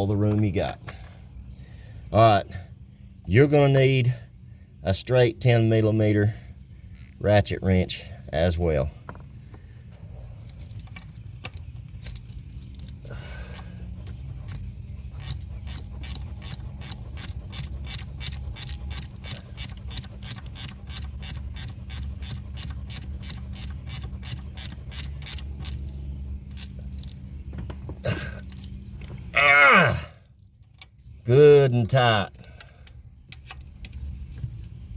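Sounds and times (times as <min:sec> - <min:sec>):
ratchet wrench clicking: 0:06.9 - 0:07.2, 0:10.5 - 0:27.3, 0:28.3 - 0:29.1.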